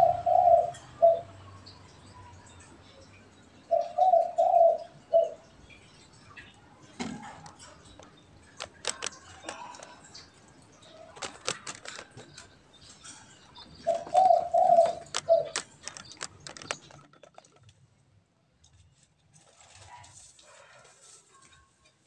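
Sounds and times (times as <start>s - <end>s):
dove cooing: 0.0s - 1.6s, 3.7s - 5.5s, 8.6s - 17.0s
sharp clicks and rattles: 7.0s - 17.8s.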